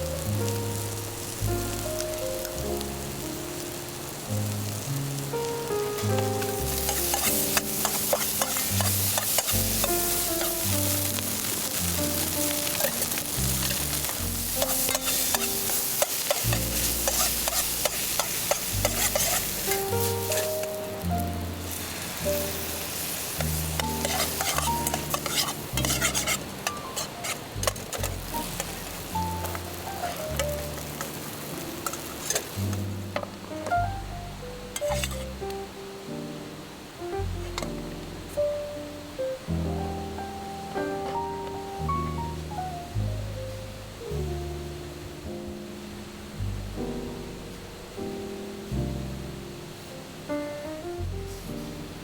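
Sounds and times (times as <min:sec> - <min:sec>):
melodic music: 0:00.0 - 0:36.5
food sizzling in a pan: 0:00.0 - 0:52.0
metal ladle scraping a pan: 0:06.6 - 0:11.0, 0:11.7 - 0:20.6, 0:21.7 - 0:31.2, 0:31.8 - 0:32.9, 0:34.8 - 0:35.3.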